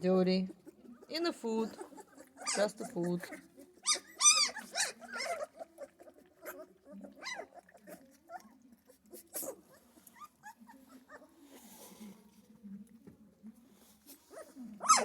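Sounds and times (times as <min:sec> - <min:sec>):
puppies whimpering and squealing: 0:00.6 - 0:11.4, 0:14.3 - 0:15.0.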